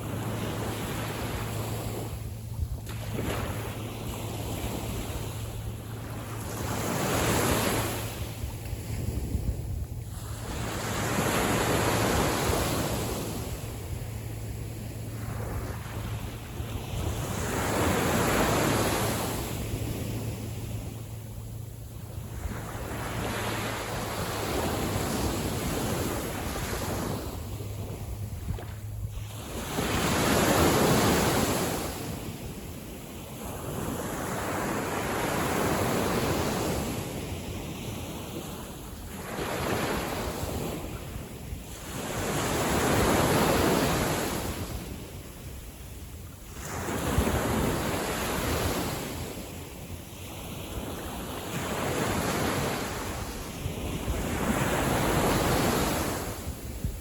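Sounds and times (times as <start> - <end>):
wind buffeting microphone: 0.0 - 33.9, 50.6 - 57.0
small waves breaking on sand: 0.0 - 57.0.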